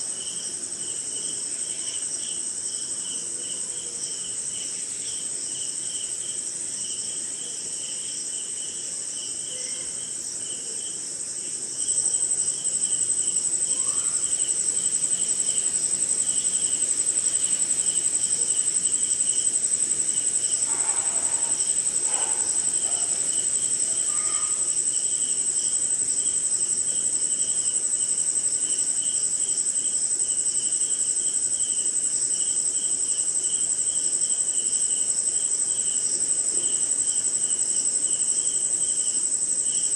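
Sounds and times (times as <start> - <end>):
crickets trilling: 0.0 - 39.9
faint short insect calls: 0.0 - 39.9
insect chirping in pulses: 0.0 - 39.9.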